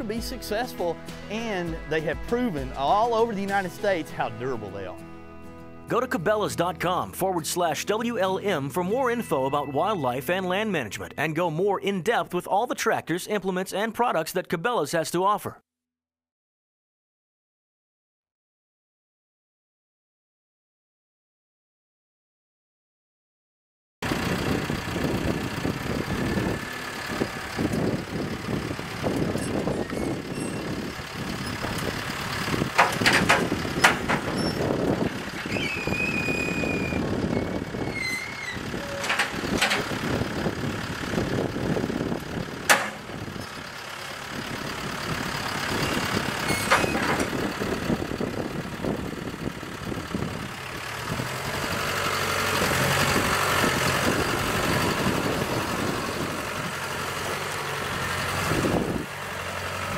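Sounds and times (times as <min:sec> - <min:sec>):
tractor engine running: 0:00.0 - 0:11.6, 0:24.0 - 0:59.9
high squeal: 0:29.4 - 0:30.8, 0:34.3 - 0:34.6, 0:35.4 - 0:39.2, 0:45.8 - 0:47.1
metallic knocks and clanks: 0:32.7 - 0:34.6, 0:38.8 - 0:40.0, 0:42.7 - 0:43.2.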